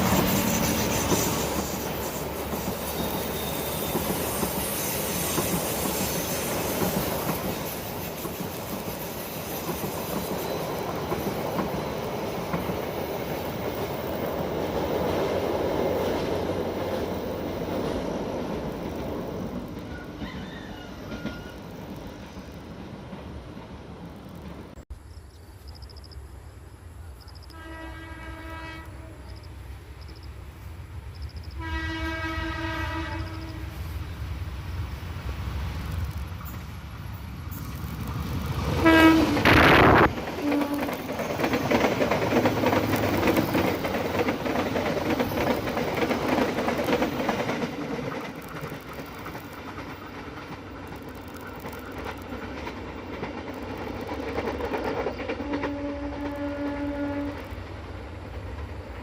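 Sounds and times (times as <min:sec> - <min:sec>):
train wheels rumbling on rails: 0:00.0 - 0:24.8, 0:26.9 - 0:59.0
train horn blasts: 0:27.5 - 0:29.4, 0:31.5 - 0:34.0, 0:38.8 - 0:41.1, 0:55.4 - 0:57.6.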